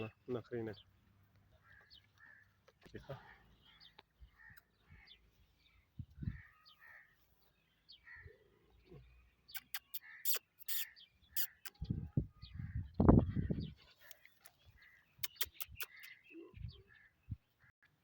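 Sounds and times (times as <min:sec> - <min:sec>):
birds calling: 0:00.0 - 0:18.0
sharp clicks: 0:15.2 - 0:16.2.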